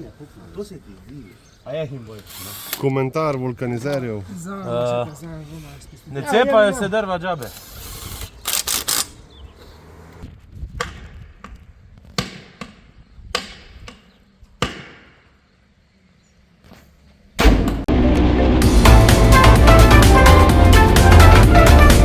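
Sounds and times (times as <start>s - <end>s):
loud electronic music: 17.9s - 22.0s.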